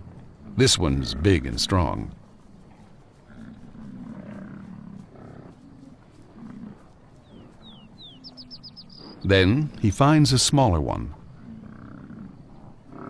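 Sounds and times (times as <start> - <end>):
bison grunting: 0.0 - 8.0, 9.0 - 13.0
falling bird chirps: 7.3 - 9.3.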